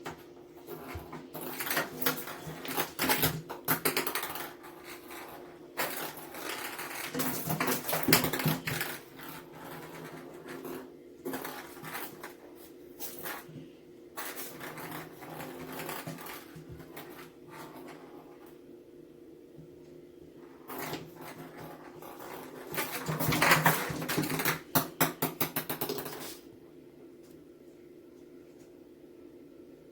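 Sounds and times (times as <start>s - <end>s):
kitten playing with toy clattering: 0.0s - 13.6s, 20.6s - 26.5s
faint steady hum: 0.0s - 29.9s.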